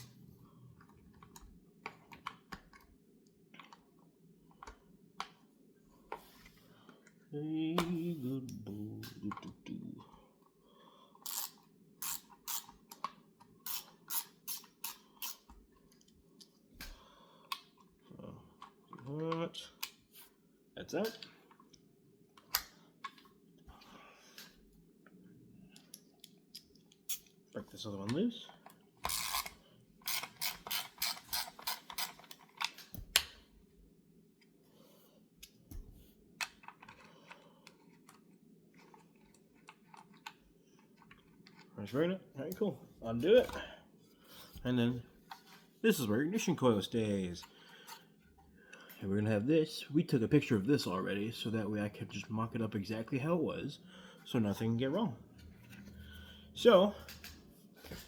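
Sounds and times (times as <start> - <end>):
hand ratchet ratcheting: 11.2 - 12.7, 13.7 - 15.4, 29.1 - 32.4
ratchet clicking: 11.3 - 12.7.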